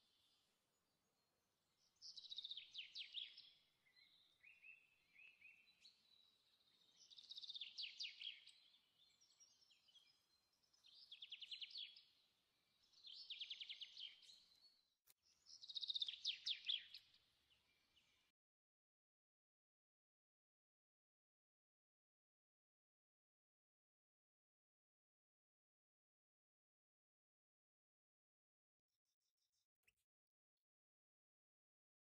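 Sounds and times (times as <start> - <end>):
faint songbird trilling: 1.8 - 18.2.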